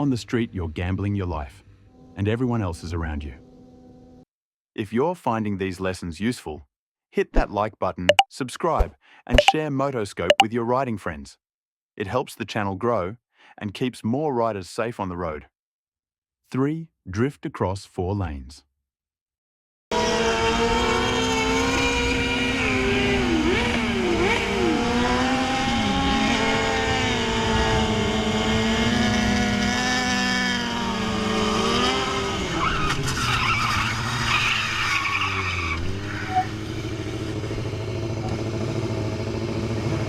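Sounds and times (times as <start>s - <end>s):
motorcycle engine revving: 20.0s - 32.5s, 35.8s - 40.0s.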